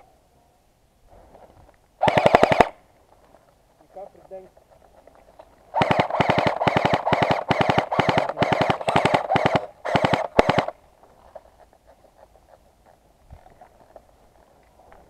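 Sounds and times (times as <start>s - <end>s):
airsoft gun firing bursts: 2.0s - 2.8s, 5.7s - 10.8s.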